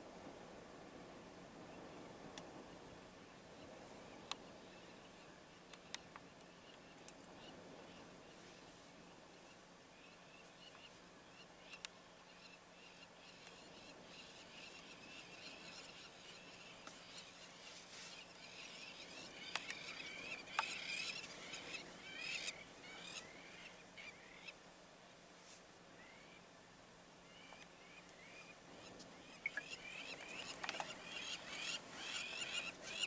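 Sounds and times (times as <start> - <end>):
small birds chirping: 9.4 - 24.6, 27.3 - 33.0.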